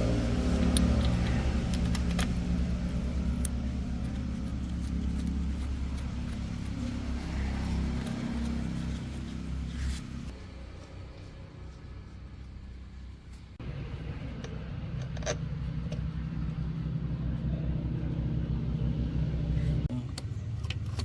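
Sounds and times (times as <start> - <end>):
truck engine humming: 0.0 - 20.8.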